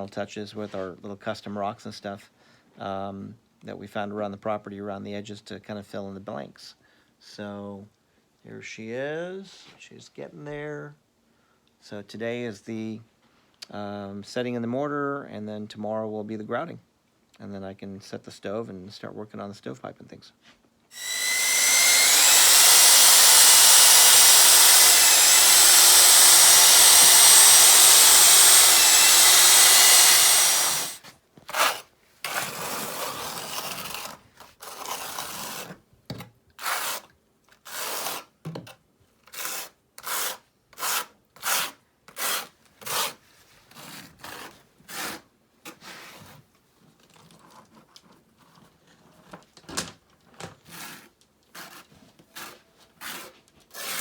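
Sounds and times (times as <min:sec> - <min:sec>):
electric drill mixing mortar: 0:21.0 - 0:31.0.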